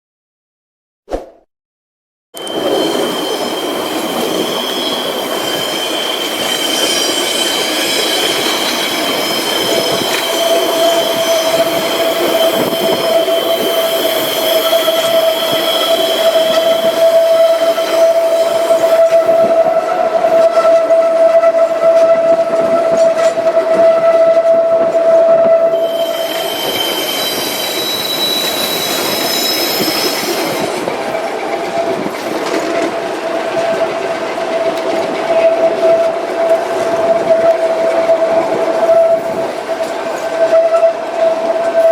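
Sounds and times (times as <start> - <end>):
train wheels squealing: 2.4 - 21.2, 25.5 - 32.9
train rolling on rails: 2.4 - 41.9.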